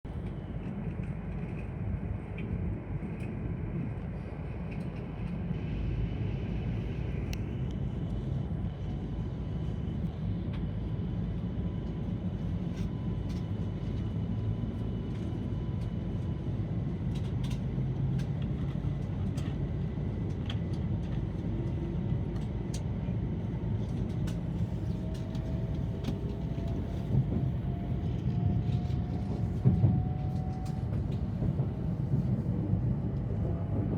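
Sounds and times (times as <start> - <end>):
train cabin rumble: 24.2 - 33.9.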